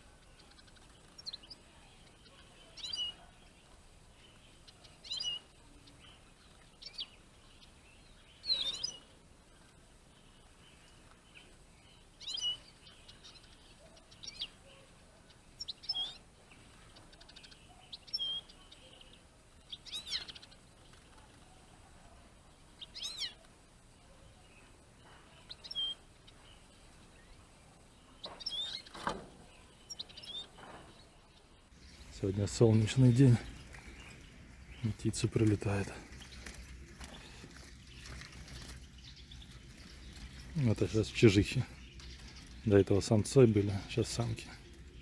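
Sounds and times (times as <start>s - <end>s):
birds giving short high calls: 31.8s - 45.0s.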